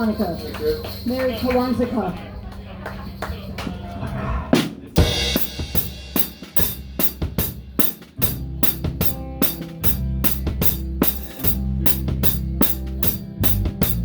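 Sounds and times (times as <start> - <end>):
drum kit beat: 4.6 - 14.0
bass guitar: 5.0 - 14.0.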